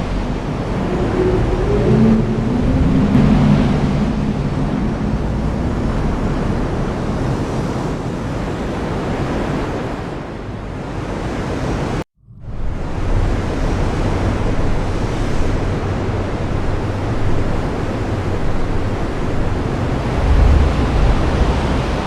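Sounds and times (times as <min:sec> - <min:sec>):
low rumble: 0:00.0 - 0:07.8, 0:12.2 - 0:22.0.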